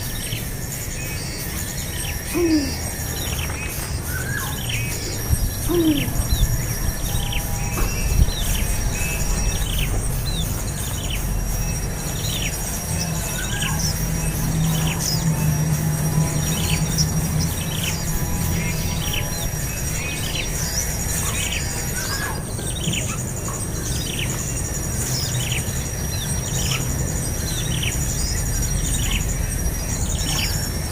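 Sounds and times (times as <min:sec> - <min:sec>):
birds chirping: 0:00.0 - 0:30.9
high insect-like whine: 0:00.0 - 0:30.9.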